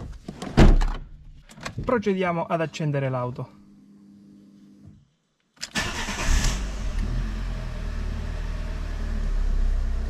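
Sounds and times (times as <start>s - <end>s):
car engine starting and idling: 5.6s - 10.0s.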